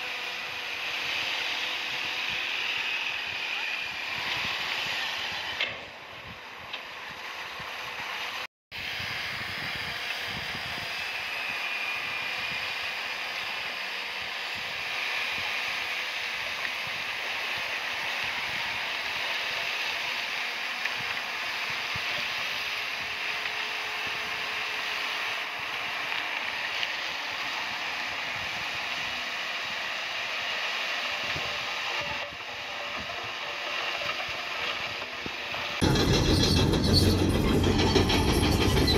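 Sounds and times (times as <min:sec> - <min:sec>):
bulldozer mechanical clatter: 0:31.2 - 0:38.9.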